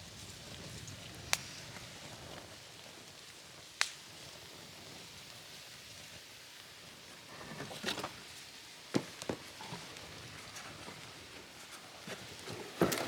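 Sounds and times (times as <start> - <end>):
campfire crackling: 0.0 - 13.0
sharp pop of fire: 3.8 - 4.0.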